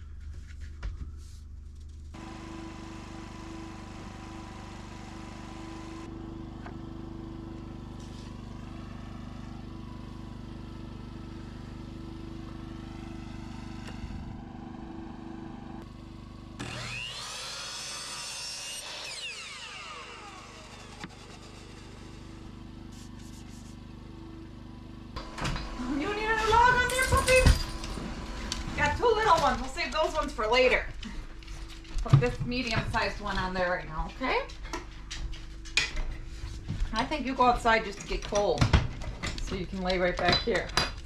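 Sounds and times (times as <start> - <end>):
power saw cutting wood: 2.2 - 30.7.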